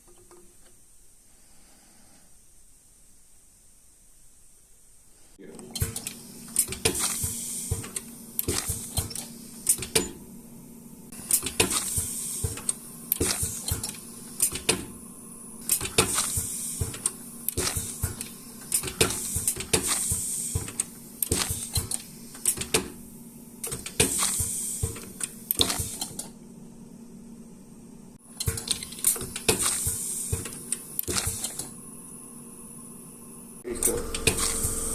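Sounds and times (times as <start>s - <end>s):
steady machine hum: 5.4s - 34.9s
machine clicks and knocks: 5.7s - 10.2s, 11.2s - 15.0s, 15.6s - 23.0s, 23.6s - 26.3s, 28.4s - 31.7s, 33.7s - 34.9s.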